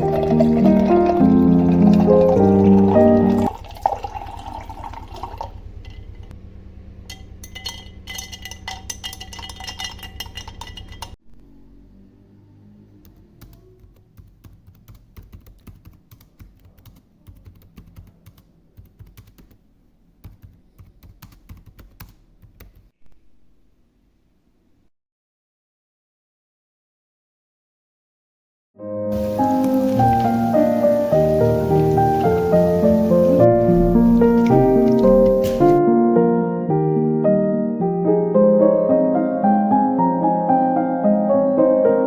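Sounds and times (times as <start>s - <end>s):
music: 0.0s - 3.5s, 28.8s - 42.0s.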